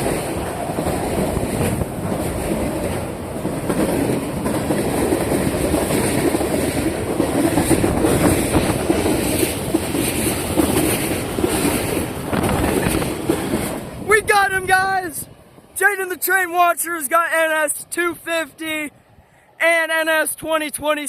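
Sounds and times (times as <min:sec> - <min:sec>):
wheels clacking over rail joints: 0:00.0 - 0:14.1
steel wheels rumbling on rail: 0:00.0 - 0:15.8.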